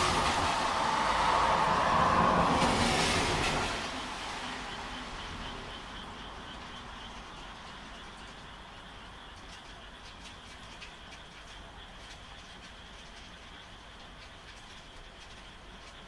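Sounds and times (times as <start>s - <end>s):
low rumble: 0.0s - 6.0s
rain hiss: 0.0s - 16.0s
frogs calling in chorus: 3.6s - 16.0s.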